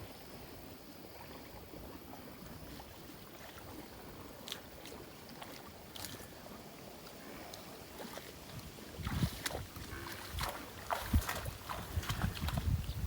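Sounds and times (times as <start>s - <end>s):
faint water sloshing: 0.0s - 13.0s
small sharp splashes: 2.7s - 6.4s, 7.3s - 12.9s.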